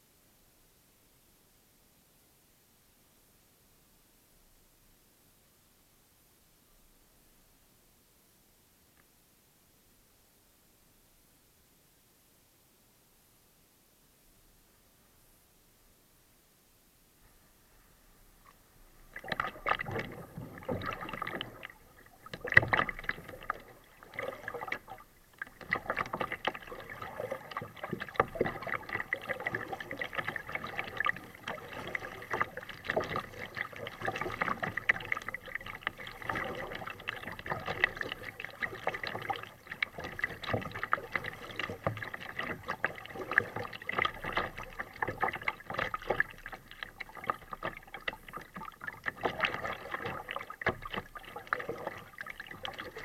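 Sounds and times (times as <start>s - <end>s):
water lapping around kayak: 17.2s - 53.0s
paddle splashes: 18.4s - 53.0s.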